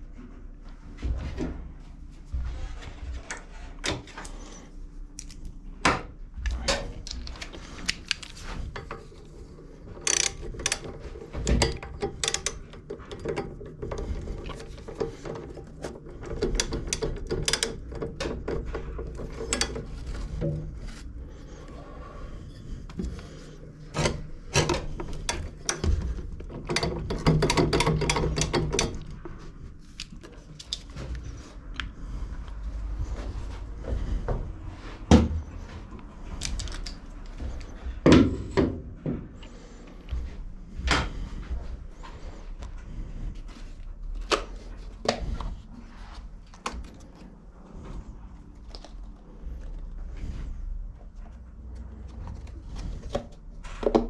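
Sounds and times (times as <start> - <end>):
metallic clicks and rattles: 6.4 - 21.0, 22.9 - 31.8, 36.3 - 37.8.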